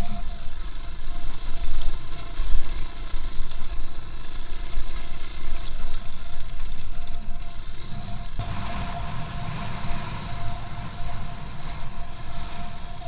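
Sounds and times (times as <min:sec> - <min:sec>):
heavy uneven low rumble: 0:06.9 - 0:13.0
vehicle road and engine noise: 0:07.3 - 0:13.0.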